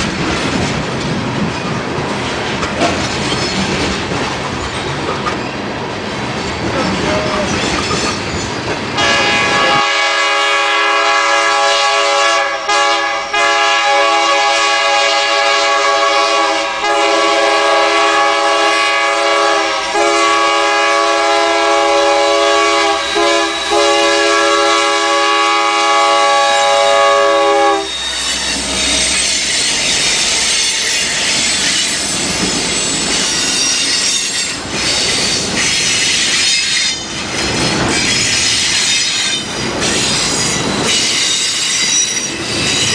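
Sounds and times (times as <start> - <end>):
train rail clatter: 0.0 - 42.9
squealing train wheels: 1.4 - 42.9
locomotive air horn blasts: 9.0 - 28.1.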